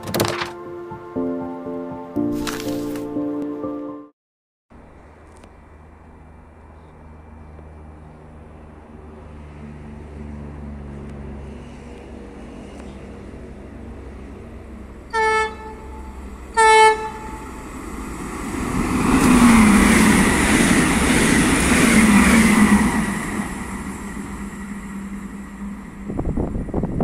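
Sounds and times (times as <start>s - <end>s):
train rushing past: 5.8s - 27.0s
train horn blasts: 15.1s - 17.5s.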